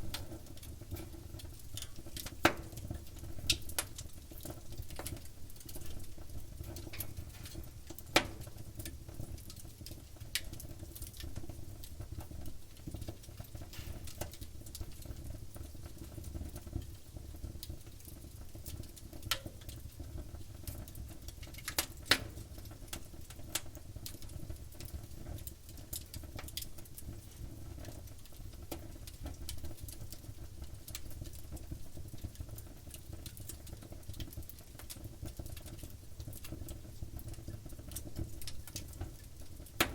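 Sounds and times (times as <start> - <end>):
campfire crackling: 0.0 - 16.6, 27.9 - 39.9
sharp pops of burning wood: 0.0 - 16.7, 18.0 - 26.7, 32.2 - 39.9
low rumble of flames: 0.0 - 39.9.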